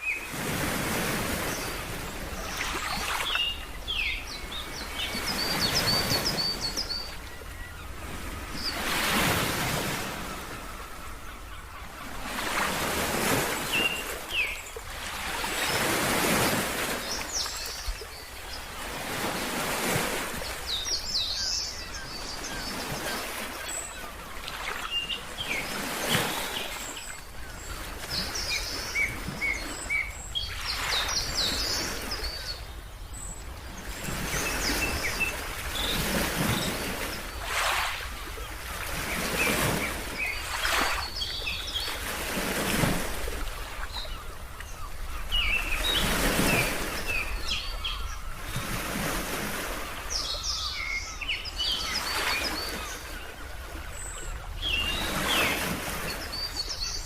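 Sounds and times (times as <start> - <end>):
small birds chirping: 20.4 - 42.0.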